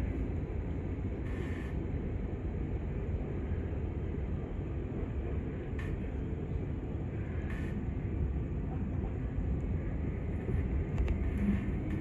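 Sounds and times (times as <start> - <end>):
train rumbling on rails: 0.0 - 12.0.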